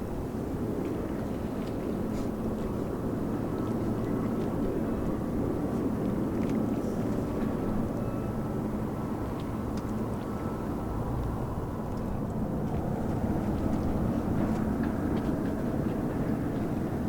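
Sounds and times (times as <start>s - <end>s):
faint engine whine: 0.0s - 17.0s.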